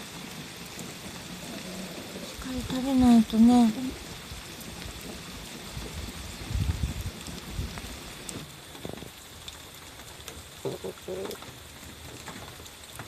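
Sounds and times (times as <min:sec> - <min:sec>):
soft patter and light knocks: 0:04.6 - 0:10.5, 0:11.2 - 0:13.0.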